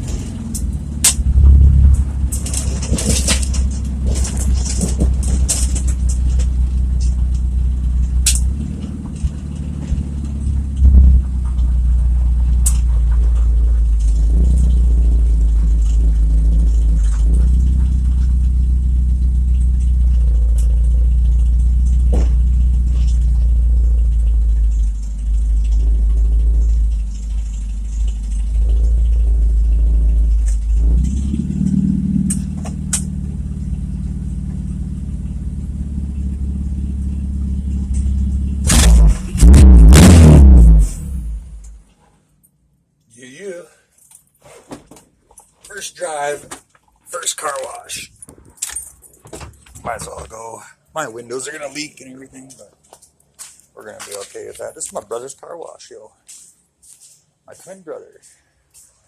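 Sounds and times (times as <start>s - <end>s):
car engine rumbling through exhaust: 0.0s - 42.0s.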